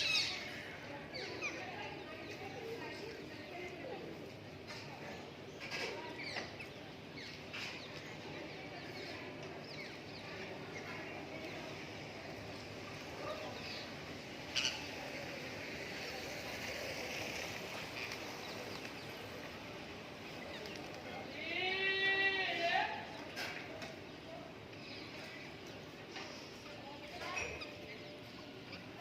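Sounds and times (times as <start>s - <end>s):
background noise: 0.0s - 29.0s.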